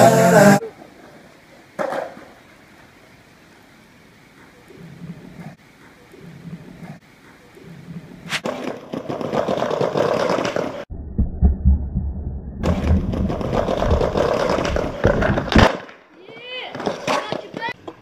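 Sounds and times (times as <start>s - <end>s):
skateboard wheels rolling: 0.0s - 3.0s, 4.3s - 10.9s, 12.6s - 18.0s
muffled low thumps: 10.9s - 15.5s.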